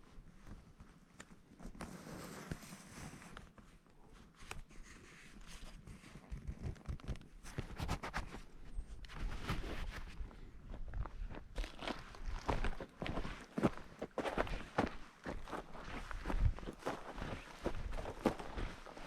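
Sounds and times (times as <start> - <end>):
footsteps on crunchy ground: 9.1 - 19.0.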